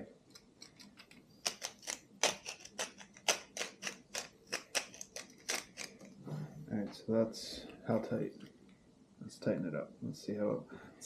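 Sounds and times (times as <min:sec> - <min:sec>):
peppermill grinding clicks: 0:00.3 - 0:06.1.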